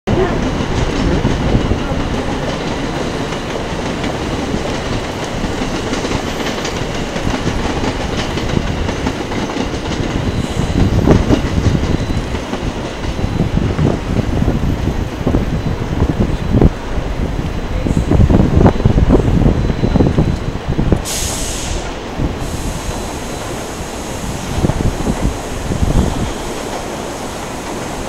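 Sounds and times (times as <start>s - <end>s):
train wheels clattering over rail joints: 0.1s - 16.8s.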